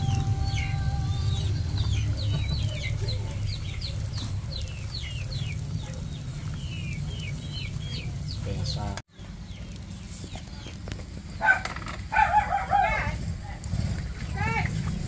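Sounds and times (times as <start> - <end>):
steady low rumble: 0.0 - 11.5
birds peeping: 0.0 - 15.0.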